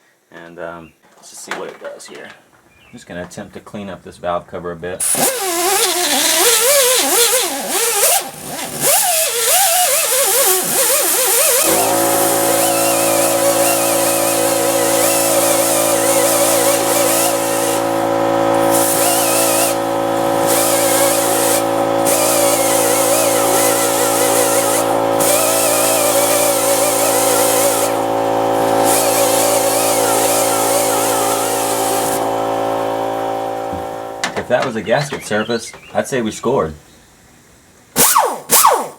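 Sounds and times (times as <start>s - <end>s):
air die grinder whining: 5.0s - 36.0s
air compressor humming: 5.0s - 36.3s
hiss of air and grinding: 9.1s - 32.7s.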